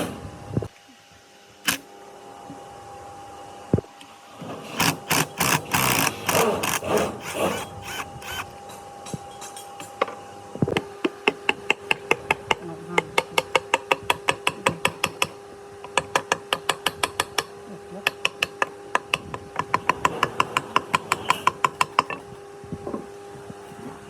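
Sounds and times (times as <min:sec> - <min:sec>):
small motor humming: 0:01.7 - 0:01.9, 0:04.6 - 0:08.6.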